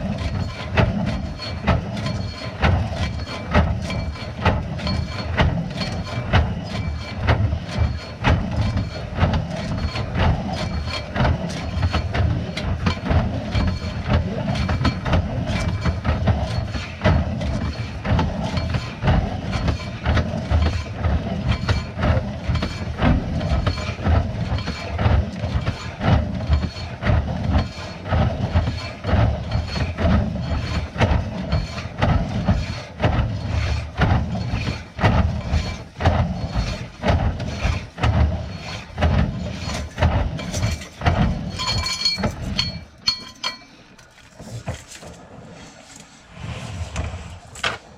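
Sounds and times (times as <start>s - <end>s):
machine rattling and knocking: 0.0s - 45.4s
low rumble: 46.1s - 47.9s.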